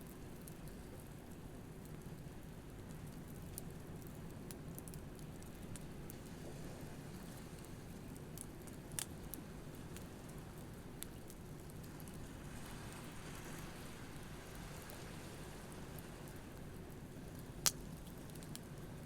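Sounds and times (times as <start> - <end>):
campfire crackling: 0.0 - 19.0
sharp pops of fire: 17.5 - 18.7.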